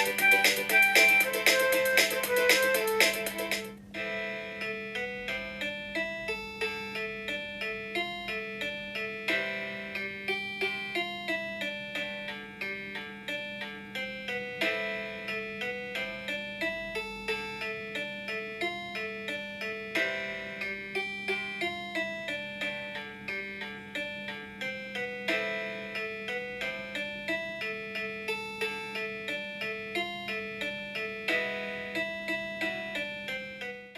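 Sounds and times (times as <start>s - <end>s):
synthesized ringtone melody: 0.0s - 13.0s.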